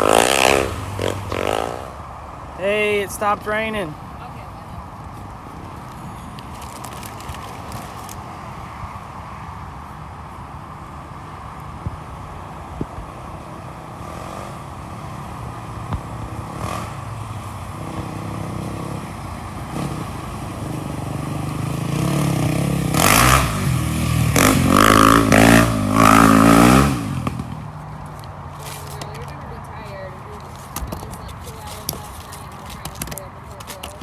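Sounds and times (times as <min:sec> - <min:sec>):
off-road vehicle engine revving: 0:00.0 - 0:02.1, 0:13.9 - 0:27.8.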